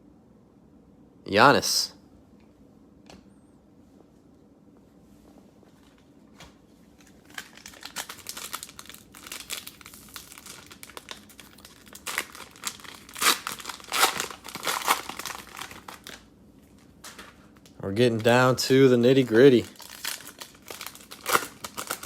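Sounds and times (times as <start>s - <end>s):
cellophane crinkling and tearing: 6.9s - 22.0s.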